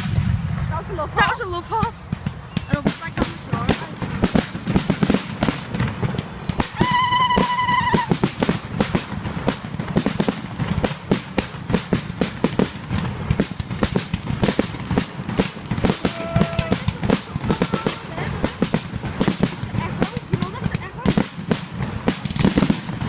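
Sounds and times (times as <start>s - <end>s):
fireworks crackling and banging: 0.0s - 23.0s
firework whistling: 2.3s - 20.6s.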